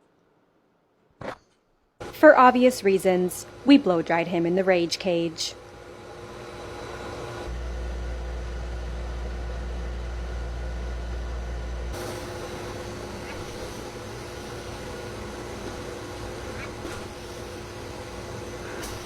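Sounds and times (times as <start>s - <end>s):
blow dryer blowing air: 11.8s - 19.0s.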